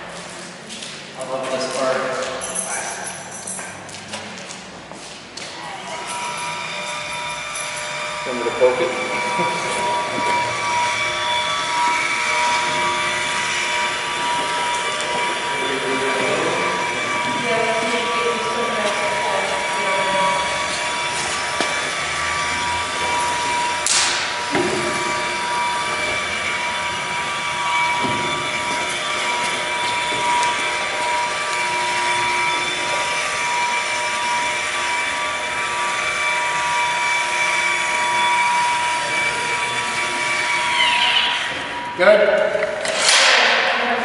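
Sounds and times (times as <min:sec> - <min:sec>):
machine whine: 0:00.0 - 0:44.0
falling squeal: 0:05.6 - 0:42.3.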